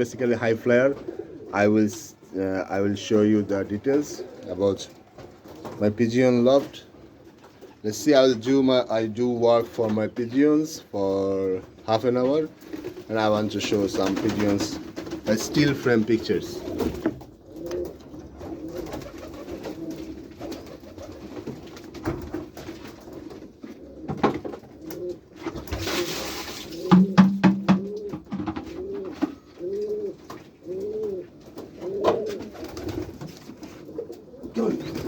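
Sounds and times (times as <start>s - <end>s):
pigeons cooing: 0.0s - 7.9s, 12.6s - 35.0s
sharp knocks: 26.9s - 28.7s.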